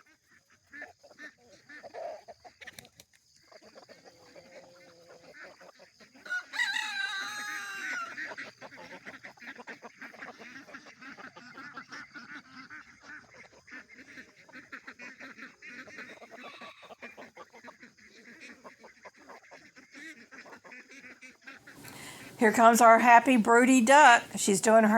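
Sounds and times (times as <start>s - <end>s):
chickens clucking: 0.0s - 24.9s
rooster crowing: 6.2s - 8.3s.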